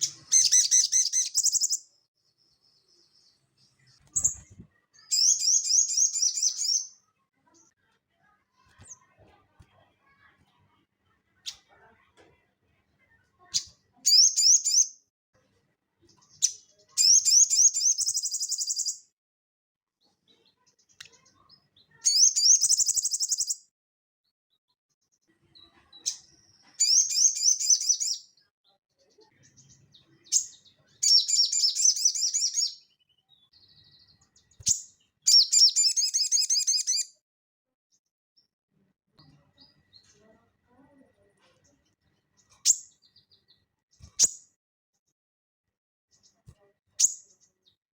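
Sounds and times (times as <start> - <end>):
songbird chattering trills: 0.1 - 1.8, 34.7 - 37.0
bird chips: 4.0 - 6.9.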